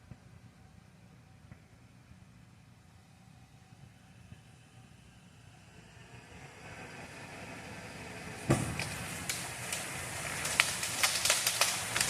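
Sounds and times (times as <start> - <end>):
vehicle engine pulling: 4.7 - 12.0
branches snapping and crackling: 8.4 - 12.0
loud wood crack: 8.5 - 12.0.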